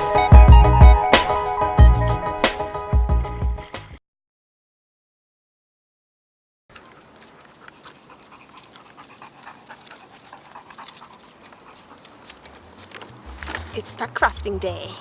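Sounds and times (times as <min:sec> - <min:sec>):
dog panting: 0:06.8 - 0:14.1.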